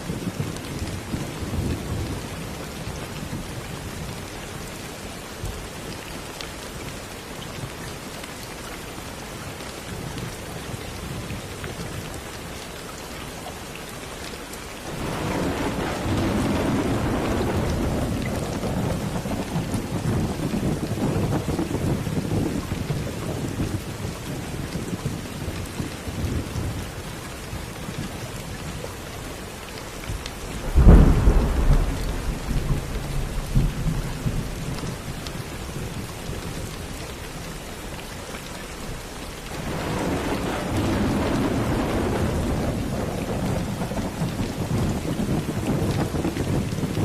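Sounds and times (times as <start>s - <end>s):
steady rain: 0.0s - 47.0s
thunder rumbling: 14.9s - 23.9s, 30.1s - 36.1s, 39.5s - 47.0s
loud thunder clap: 15.0s - 21.8s, 30.6s - 34.5s, 39.6s - 47.0s.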